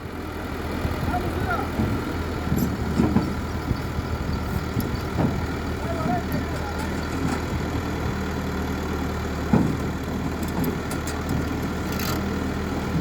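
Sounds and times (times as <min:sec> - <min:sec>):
drilling rig engine humming: 0:00.0 - 0:13.0.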